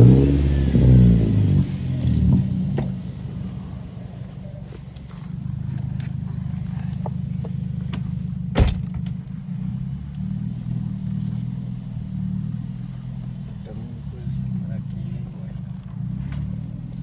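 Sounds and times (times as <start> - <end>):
car engine idling: 0.0 - 17.0
loud thump: 8.5 - 9.0.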